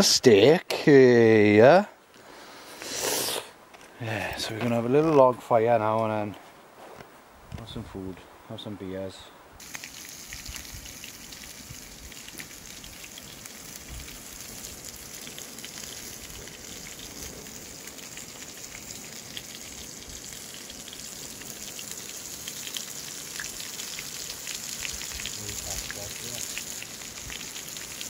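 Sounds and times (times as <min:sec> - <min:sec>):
food sizzling in a pan: 0:09.6 - 0:28.0.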